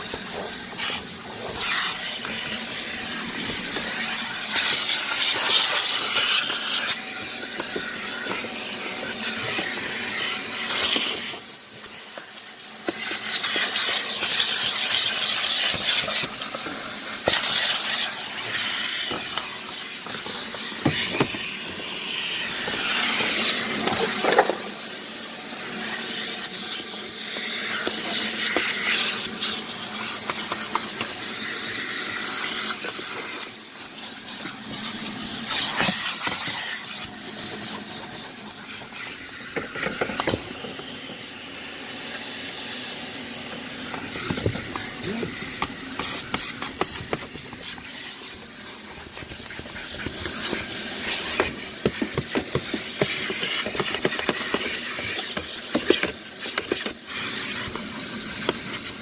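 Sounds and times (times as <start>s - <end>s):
hissing spray jet on truck: 44.0s - 59.0s.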